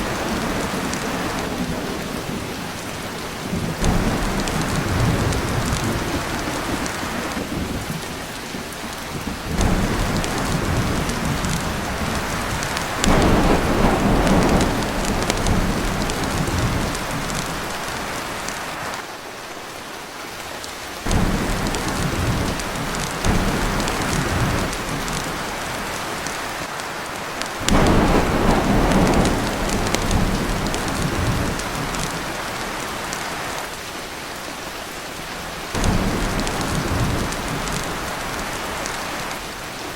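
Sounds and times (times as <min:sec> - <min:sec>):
heavy rain on a tin roof: 0:00.0 - 0:39.9
rolling thunder: 0:03.4 - 0:18.6, 0:21.1 - 0:26.0, 0:27.6 - 0:32.6, 0:35.8 - 0:39.0.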